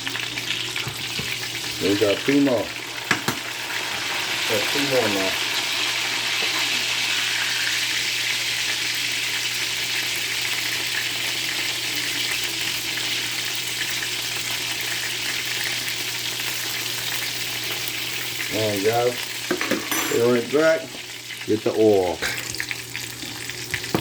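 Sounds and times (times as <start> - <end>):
chicken deep-frying in oil: 0.0 - 24.0.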